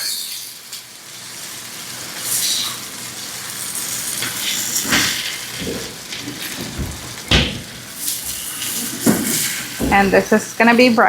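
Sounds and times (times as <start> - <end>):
food sizzling in a frying pan: 0.0 - 11.0
stirring scrapes in a pan: 2.2 - 6.6, 8.0 - 10.7.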